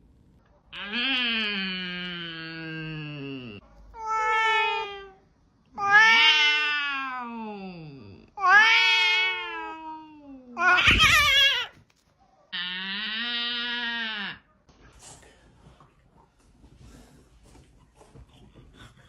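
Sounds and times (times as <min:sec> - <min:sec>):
cat yowling: 0:04.0 - 0:05.2, 0:05.8 - 0:07.4, 0:08.4 - 0:11.8.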